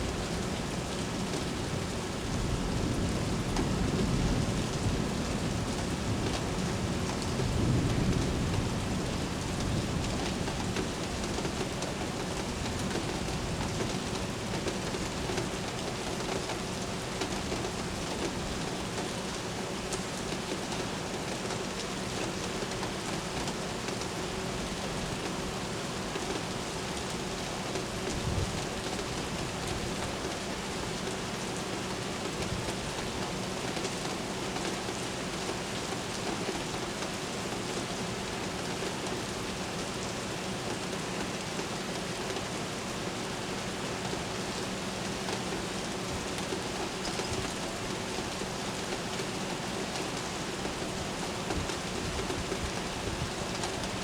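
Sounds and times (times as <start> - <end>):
rain falling on hard surfaces: 0.0 - 54.0
low roll of thunder: 1.4 - 11.4.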